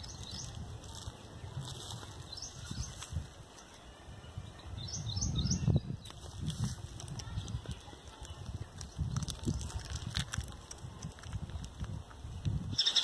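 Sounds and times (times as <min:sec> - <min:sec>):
hands rustling dry straw: 0:00.0 - 0:03.8, 0:06.0 - 0:12.2
small bird chirping: 0:12.7 - 0:13.0.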